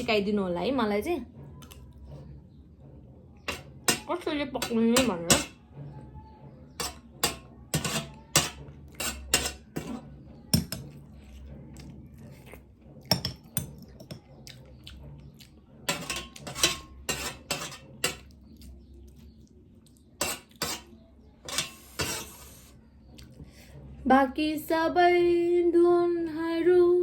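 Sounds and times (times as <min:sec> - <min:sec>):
cutlery clicking on a plate: 0:03.5 - 0:05.6, 0:06.8 - 0:11.0, 0:13.1 - 0:14.3, 0:15.9 - 0:18.4, 0:20.2 - 0:22.3.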